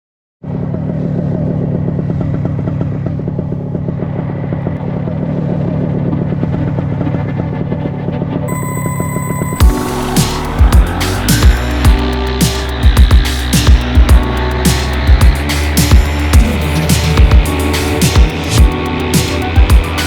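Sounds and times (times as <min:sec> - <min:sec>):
paramotor engine running: 0:09.3 - 0:20.0.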